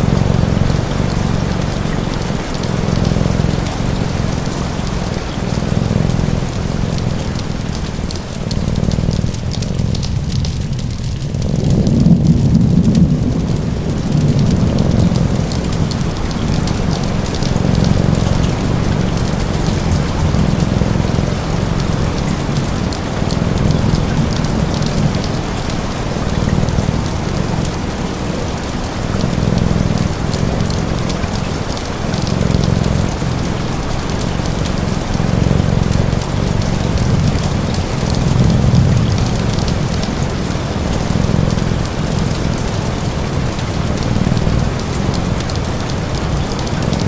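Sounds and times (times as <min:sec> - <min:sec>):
low rumble: 0:00.0 - 0:28.2
rain pattering: 0:00.0 - 0:47.0.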